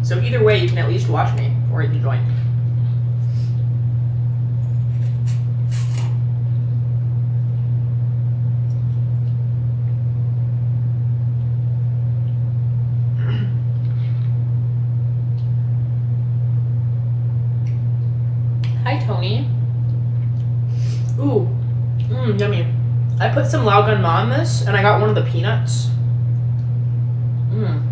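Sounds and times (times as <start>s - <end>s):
loud low hum: 0.0s - 27.9s.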